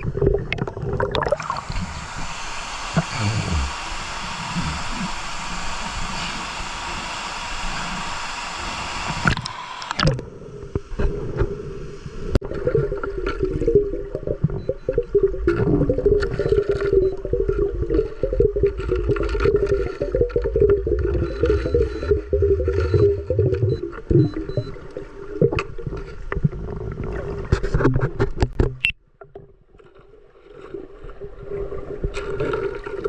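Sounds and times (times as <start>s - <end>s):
underwater bubbling: 0.0s - 6.7s, 9.2s - 27.8s
underwater rumble: 0.0s - 7.0s, 10.0s - 28.1s
waterfall rushing: 1.4s - 9.9s.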